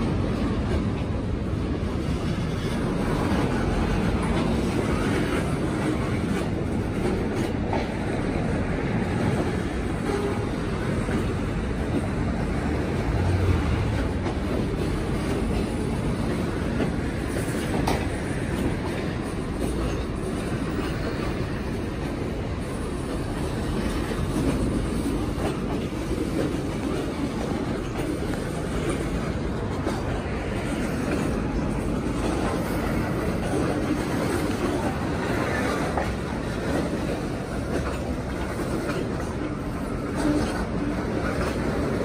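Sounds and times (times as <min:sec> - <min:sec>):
train wheels rumbling on rail: 0:00.0 - 0:42.0
wheels clicking over rail joints: 0:00.0 - 0:42.0.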